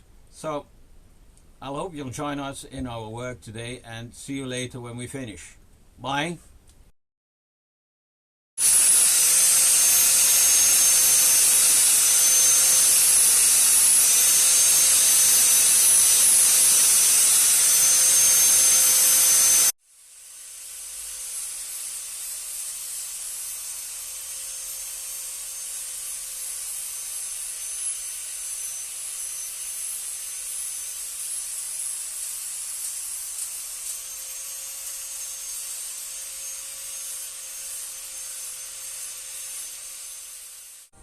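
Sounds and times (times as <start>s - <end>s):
tool hissing: 8.6s - 41.0s.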